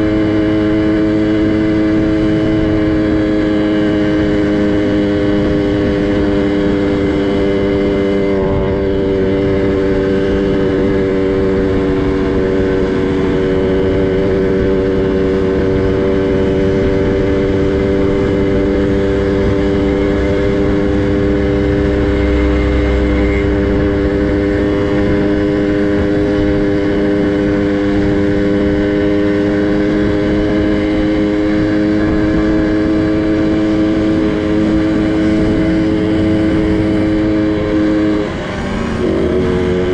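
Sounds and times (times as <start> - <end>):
minibike engine running: 0.0 - 39.9
low rumble: 17.0 - 28.3.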